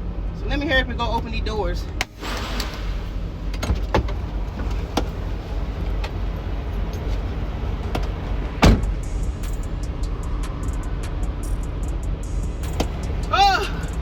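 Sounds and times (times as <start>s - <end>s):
diesel truck engine idling: 3.0s - 14.0s
trailer doors knocking and banging: 7.8s - 9.0s.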